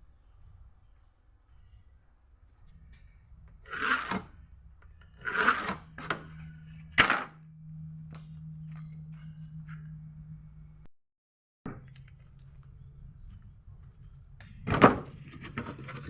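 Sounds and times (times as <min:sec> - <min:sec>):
electric grinder motor humming: 0:03.6 - 0:04.3, 0:05.2 - 0:06.2
harsh grinding bursts: 0:03.6 - 0:04.4, 0:05.0 - 0:06.5.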